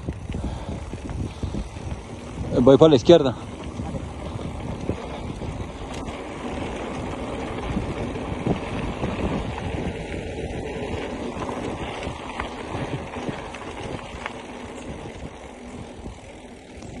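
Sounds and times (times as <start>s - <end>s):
bicycle rolling over dirt: 0.0s - 17.0s
bike clicks and rattles: 0.0s - 17.0s
wind buffeting microphone: 0.0s - 17.0s.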